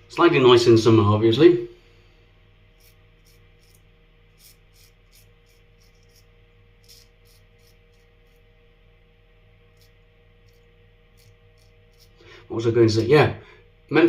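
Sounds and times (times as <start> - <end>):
low room hum: 0.0 - 14.0
razor scraping stubble: 2.7 - 8.5, 9.6 - 13.2.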